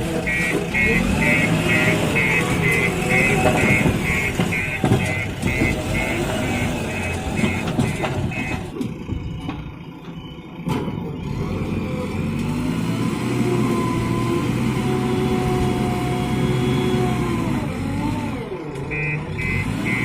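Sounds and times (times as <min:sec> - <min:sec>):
diesel engine running: 0:00.0 - 0:20.0
reversing alarm beeping: 0:00.2 - 0:12.2, 0:18.9 - 0:20.0.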